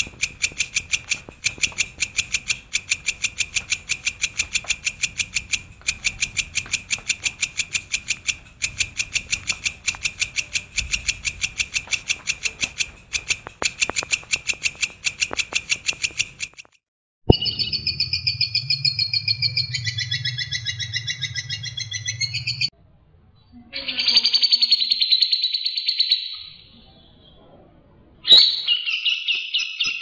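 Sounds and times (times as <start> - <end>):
songbird chirps: 17.3 - 22.7
songbird trilling song: 17.3 - 22.7
low hum: 17.3 - 23.4.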